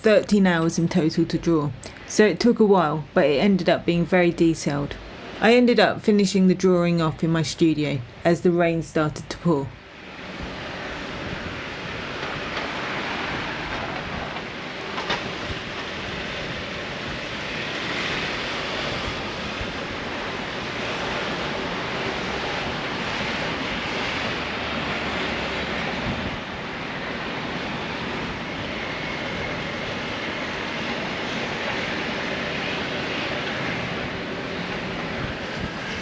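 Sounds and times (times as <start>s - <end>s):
city traffic: 20.6s - 36.0s.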